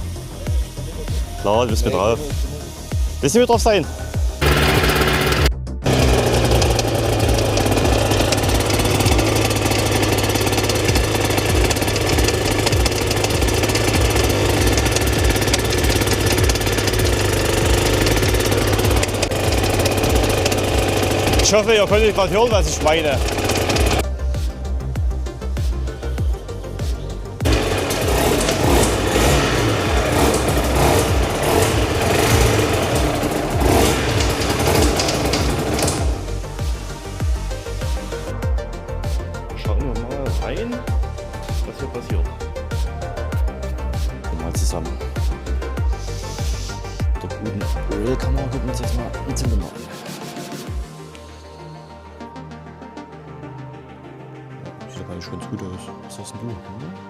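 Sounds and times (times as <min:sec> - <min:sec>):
motorcycle engine idling with clatter: 0:04.4 - 0:24.1, 0:27.4 - 0:39.2.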